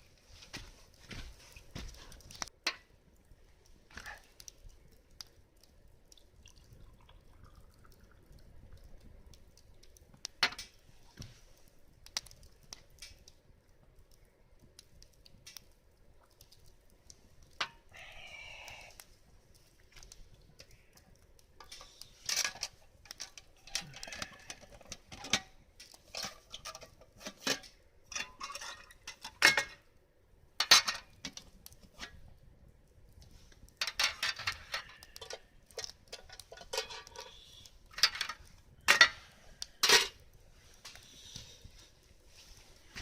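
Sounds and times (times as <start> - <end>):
hard objects clinking and rattling: 33.8 - 39.2.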